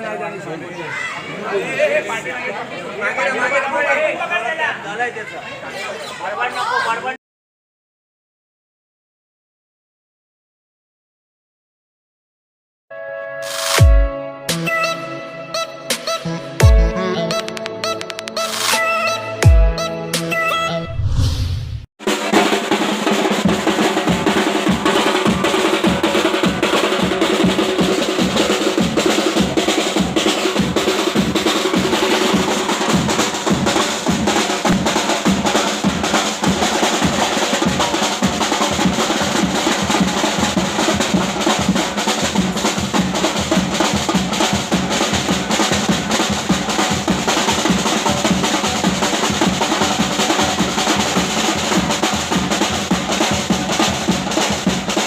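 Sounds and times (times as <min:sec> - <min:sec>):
loud drumming fast beat: 0:15.9 - 0:17.6, 0:22.0 - 0:55.0.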